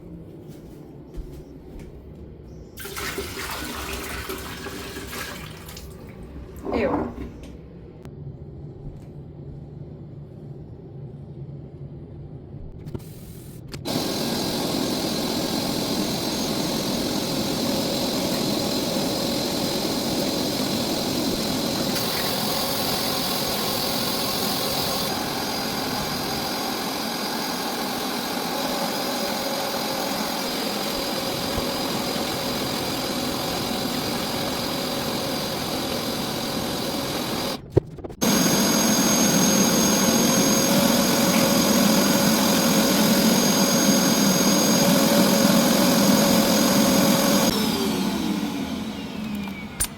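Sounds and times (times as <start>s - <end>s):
carpet cleaner whirring suction: 13.9s - 37.6s, 38.2s - 49.9s.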